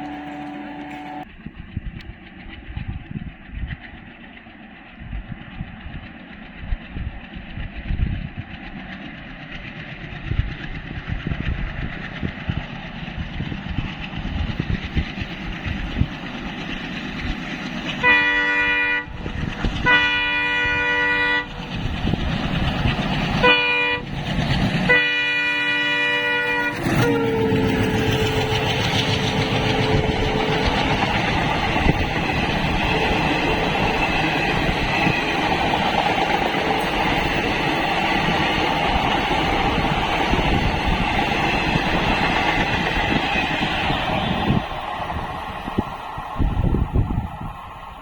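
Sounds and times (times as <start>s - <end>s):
train horn blasts: 0.0s - 1.3s, 18.0s - 21.6s, 23.3s - 24.1s, 24.9s - 32.0s
train rumble and wheel clatter: 0.0s - 48.0s.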